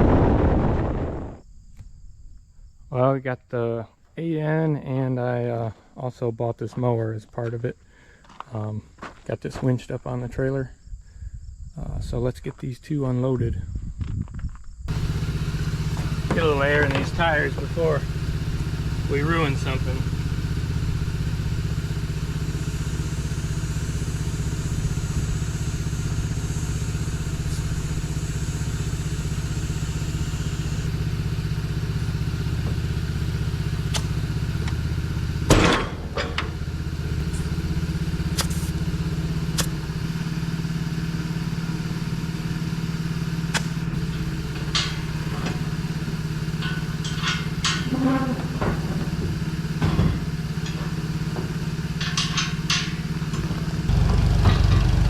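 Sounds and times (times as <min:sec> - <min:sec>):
clicks and clanks: 0:14.9 - 0:20.6, 0:35.5 - 0:37.5, 0:43.5 - 0:55.0
engine idling: 0:14.9 - 0:55.0.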